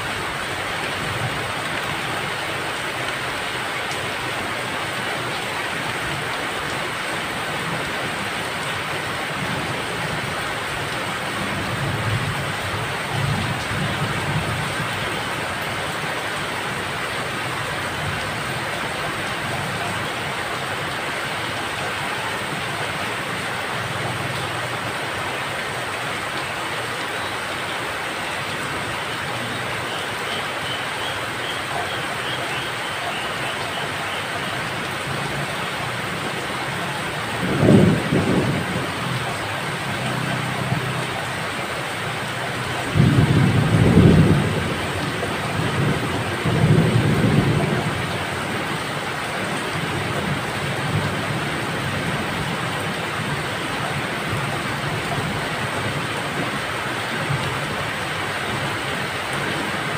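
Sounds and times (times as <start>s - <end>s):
steady rain falling: 0.0s - 59.9s
rolling thunder: 37.3s - 39.2s, 42.9s - 48.1s.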